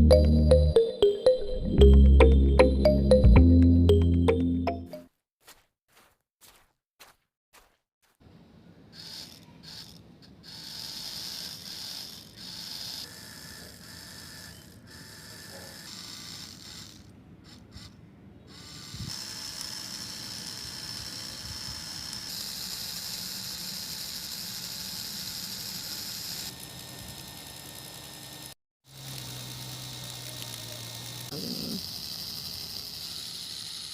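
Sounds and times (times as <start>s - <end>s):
small electric motor whining: 8.9s - 33.9s.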